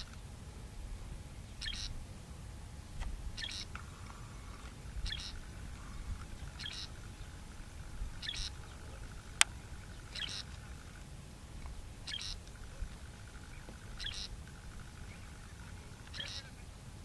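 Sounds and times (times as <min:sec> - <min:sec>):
low steady rumble: 0:00.0 - 0:17.0
small bird high call: 0:01.4 - 0:02.0, 0:03.4 - 0:11.0, 0:12.0 - 0:16.7.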